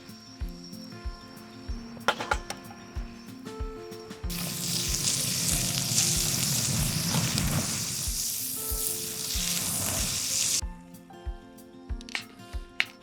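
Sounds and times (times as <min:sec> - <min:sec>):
food sizzling in frying pan: 0:04.2 - 0:10.6.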